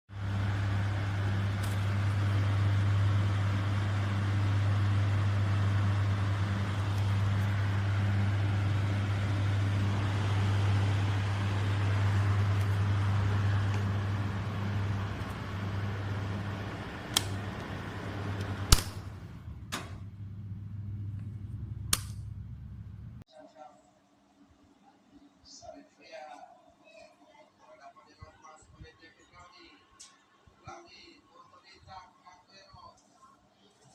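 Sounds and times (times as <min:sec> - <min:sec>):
exhaust fan motor hum: 0:00.1 - 0:23.2
sharp clicks: 0:21.9 - 0:22.2.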